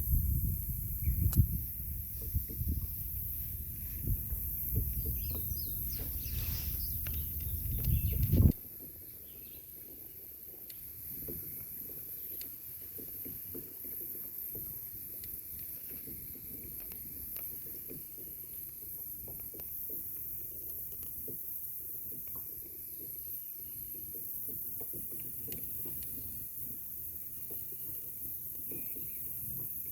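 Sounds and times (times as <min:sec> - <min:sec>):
low rumble on microphone: 0:00.0 - 0:08.6
faint bird chirps: 0:04.6 - 0:09.7.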